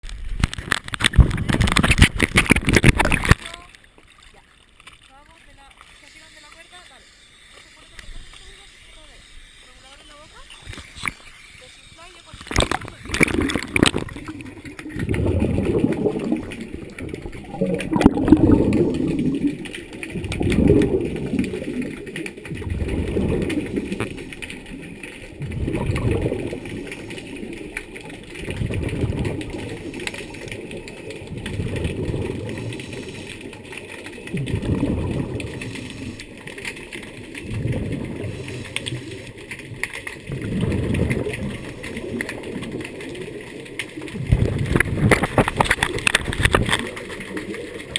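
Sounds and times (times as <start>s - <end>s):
rumble of exhaled bubbles: 1.0s - 3.4s, 12.5s - 47.9s
diver breathing through regulator: 29.6s - 30.7s, 32.2s - 33.8s, 35.2s - 36.6s, 38.0s - 39.6s.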